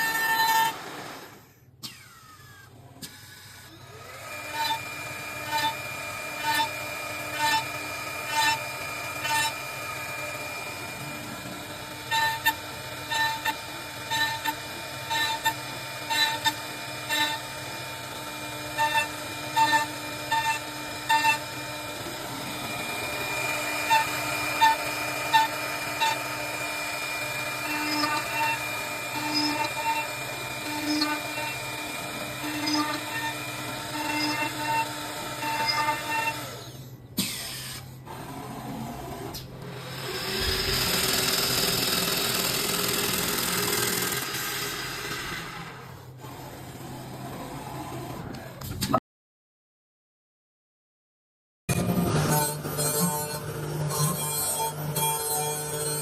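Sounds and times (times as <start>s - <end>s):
lathe machine whine: 3.9s - 36.8s, 39.2s - 45.8s.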